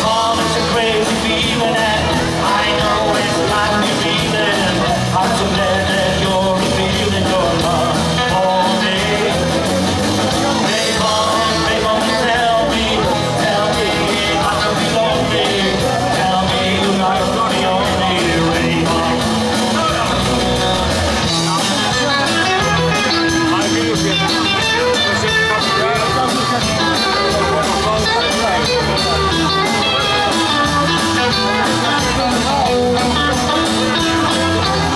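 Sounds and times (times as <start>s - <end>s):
person singing: 0.0s - 9.7s, 10.4s - 20.5s
rock and roll band playing: 0.0s - 34.9s.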